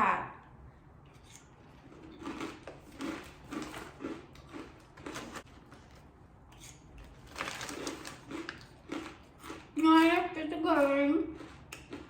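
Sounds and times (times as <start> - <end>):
corn nuts crunching being chewed: 1.8 - 5.5, 7.3 - 9.8, 10.8 - 12.0.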